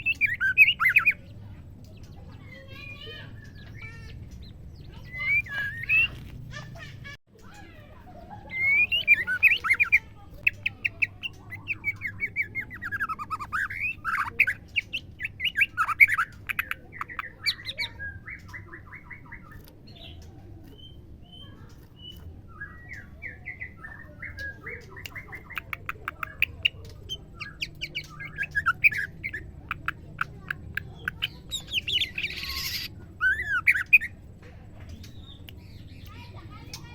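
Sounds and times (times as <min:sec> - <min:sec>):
bird chirps and trills: 0:00.0 - 0:36.9
harsh bird call: 0:02.5 - 0:07.1, 0:26.4 - 0:34.2.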